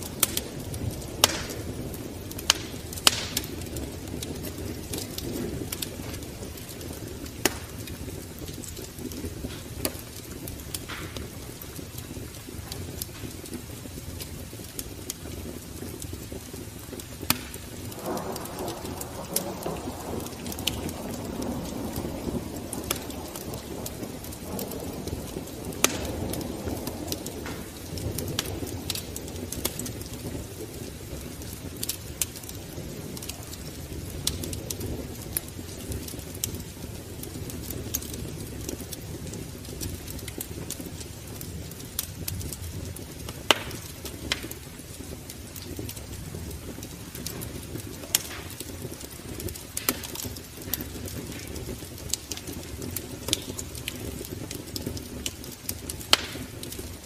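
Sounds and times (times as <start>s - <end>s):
wood fire crackling: 0.0s - 57.0s
sharp pops: 1.2s - 1.6s, 2.4s - 3.6s, 7.4s - 8.0s, 17.3s - 18.5s, 25.8s - 26.3s, 43.5s - 44.6s, 56.1s - 56.6s.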